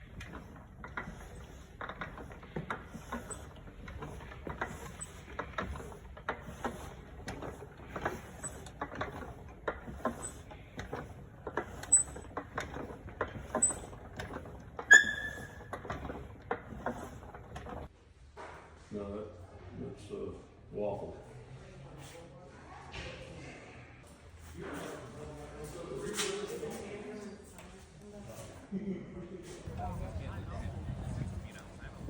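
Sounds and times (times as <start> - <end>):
engine parts clicking and clacking: 0.0 - 17.9, 29.7 - 32.0
engine squeaks: 0.0 - 17.9
engine squeal: 13.4 - 17.0.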